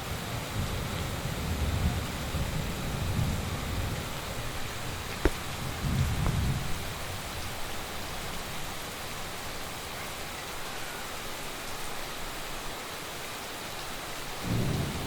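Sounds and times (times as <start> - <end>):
heavy rain falling: 0.0 - 15.0
low rumble of thunder: 0.1 - 7.3, 14.4 - 15.0
sharp tap: 5.2 - 5.4.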